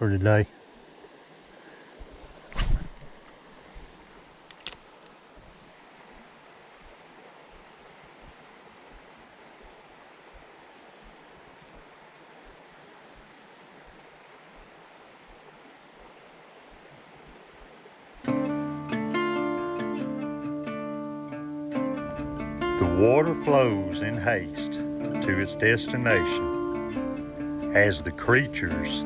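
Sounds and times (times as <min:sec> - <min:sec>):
steady hiss: 0:00.0 - 0:19.2, 0:22.0 - 0:29.0
insects trilling: 0:00.0 - 0:29.0
acoustic guitar music: 0:18.2 - 0:29.0.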